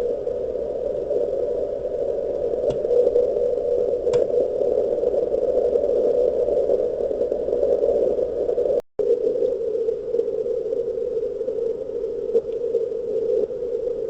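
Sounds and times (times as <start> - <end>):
radio band noise hiss: 0.0 - 14.0.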